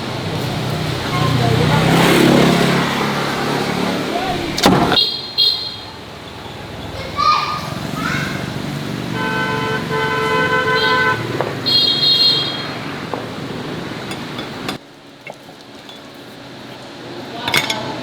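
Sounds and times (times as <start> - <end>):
road traffic noise: 0.0 - 18.0
vehicle horn honking: 4.3 - 6.0, 9.1 - 12.9.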